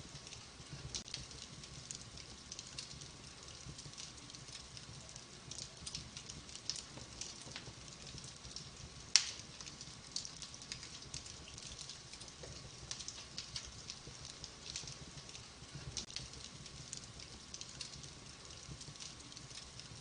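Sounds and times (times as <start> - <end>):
wood fire crackling: 0.0 - 20.0
sharp loud pop from fire: 9.2 - 9.4.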